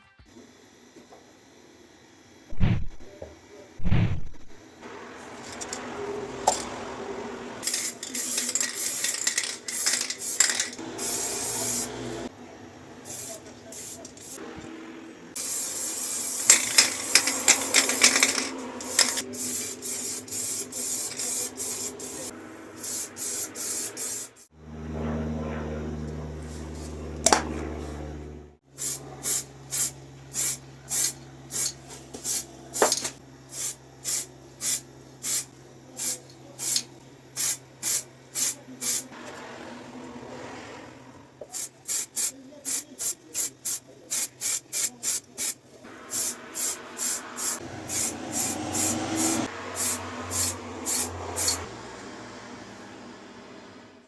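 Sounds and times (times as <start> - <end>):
low hum: 2.5 - 3.1, 3.8 - 4.6, 24.5 - 31.5
spray paint hissing bursts: 2.5 - 3.1, 3.8 - 4.6, 7.6 - 12.3, 13.1 - 14.4, 15.4 - 24.5, 28.8 - 39.2, 41.4 - 51.7.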